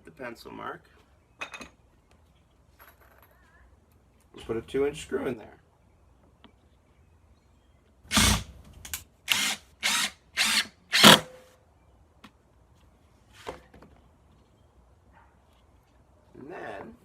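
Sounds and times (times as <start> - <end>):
impact driver driving screw: 8.1 - 8.5, 9.3 - 11.4.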